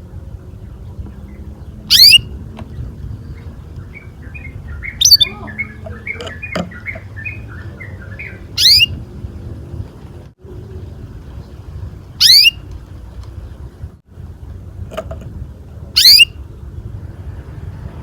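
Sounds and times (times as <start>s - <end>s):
canary sharply rising calls: 1.9s - 2.2s, 4.2s - 9.0s, 12.2s - 12.6s, 16.0s - 16.3s
canary soft twittering: 1.9s - 2.2s, 3.4s - 9.0s, 12.2s - 12.6s, 16.0s - 16.3s.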